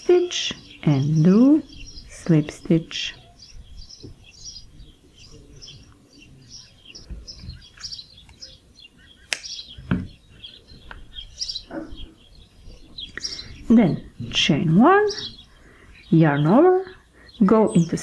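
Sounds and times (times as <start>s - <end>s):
small birds chirping: 0.0s - 18.0s
sharp click: 9.3s - 9.6s.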